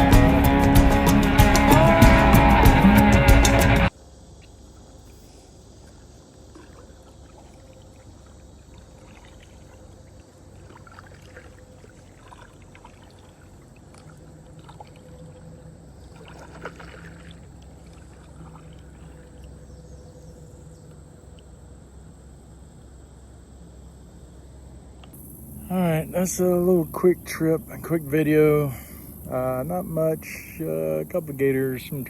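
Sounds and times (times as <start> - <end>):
small water splashes: 5.8 - 19.9
water trickling and dripping: 5.9 - 19.7.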